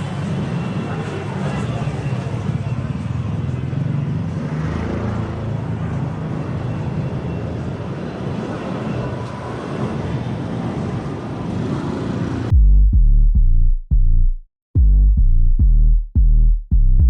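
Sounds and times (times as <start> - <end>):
road noise: 0.0 - 12.5
vehicles passing: 0.0 - 12.5.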